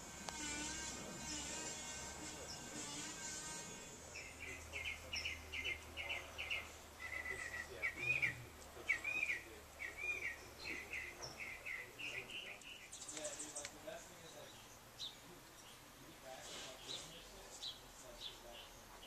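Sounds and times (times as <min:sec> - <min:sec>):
buzzing tone: 0:00.0 - 0:04.7
steady low hum: 0:00.0 - 0:16.4
bird singing: 0:00.3 - 0:03.2, 0:04.0 - 0:19.0.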